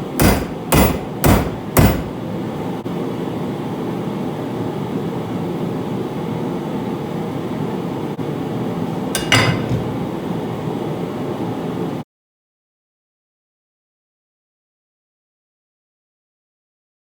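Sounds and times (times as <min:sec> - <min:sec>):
sharp metallic clank: 0:00.2 - 0:02.2, 0:09.2 - 0:09.9.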